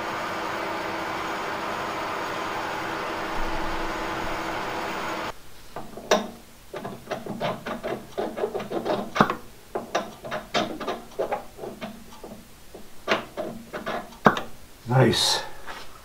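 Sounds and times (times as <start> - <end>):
shop machine running: 0.0 - 5.3
sharp mechanical clicks and knocks: 5.8 - 14.5.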